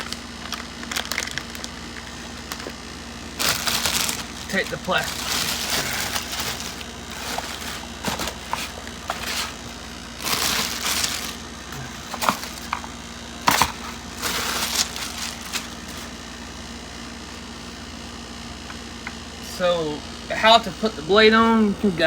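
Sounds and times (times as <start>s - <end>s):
plastic packaging crinkling: 0.0s - 16.2s.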